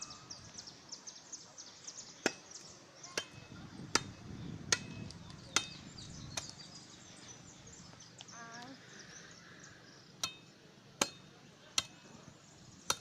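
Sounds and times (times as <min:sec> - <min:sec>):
machete chopping firewood: 0:02.2 - 0:06.6, 0:10.2 - 0:12.0, 0:12.8 - 0:13.0.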